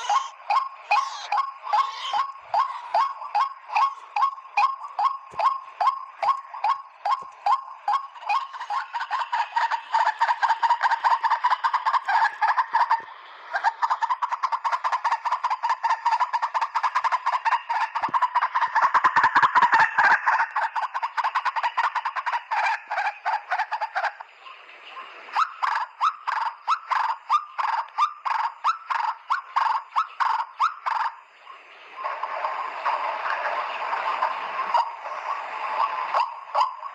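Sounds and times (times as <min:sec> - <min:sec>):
bird giving harsh repeated calls: 0:00.0 - 0:24.2.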